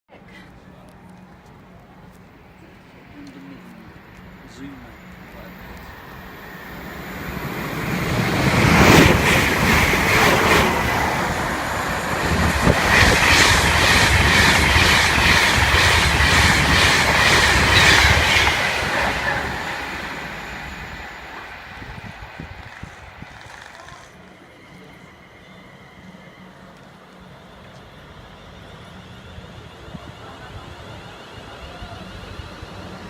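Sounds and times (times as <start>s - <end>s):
train wheels clacking: 7.0s - 25.0s.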